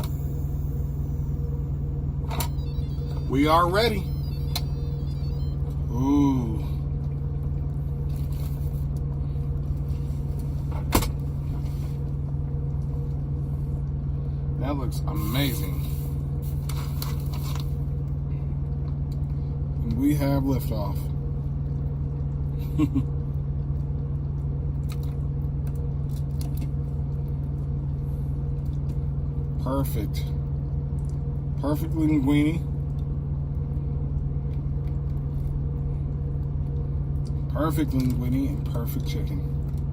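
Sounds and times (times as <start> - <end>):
truck engine idling: 0.0 - 18.6.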